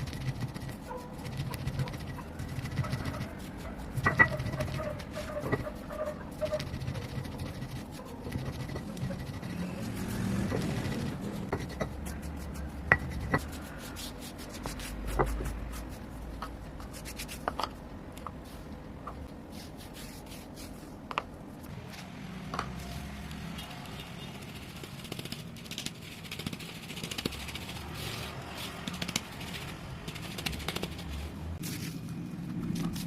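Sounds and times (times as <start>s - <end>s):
chalk scraping and rubbing: 0.0s - 17.7s, 18.4s - 21.0s, 22.8s - 32.0s
chalk pieces cracking: 0.0s - 17.8s, 22.8s - 33.0s.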